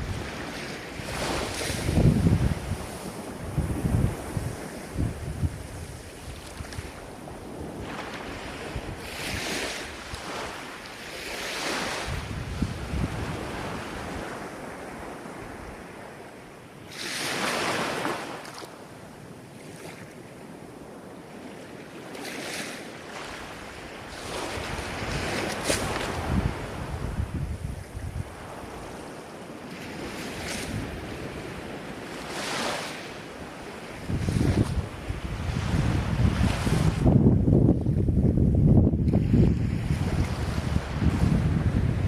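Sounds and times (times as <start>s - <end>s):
wind rumbling on microphone: 0.0s - 16.4s, 22.2s - 42.0s
ocean waves surging: 28.2s - 37.3s.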